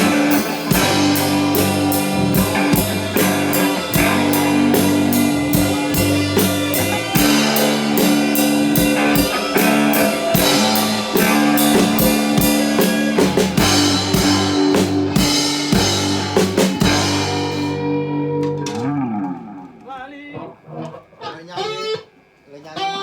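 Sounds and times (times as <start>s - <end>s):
bass drum hits: 0.0s - 17.9s
drum kit beat: 0.0s - 18.6s
held guitar and bass notes: 0.0s - 22.1s.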